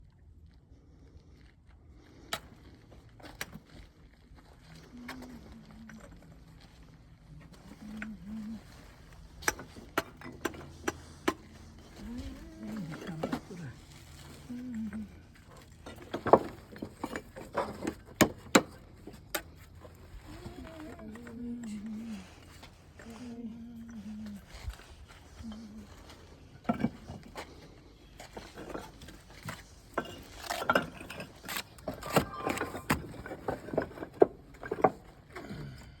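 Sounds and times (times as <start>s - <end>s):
trowel scraping: 25.5s - 33.5s.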